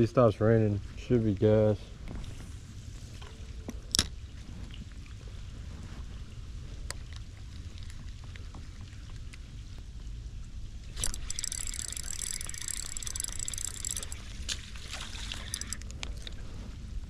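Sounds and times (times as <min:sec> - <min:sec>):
low wind rumble: 0:00.0 - 0:17.0
fishing reel whirring: 0:10.9 - 0:16.4.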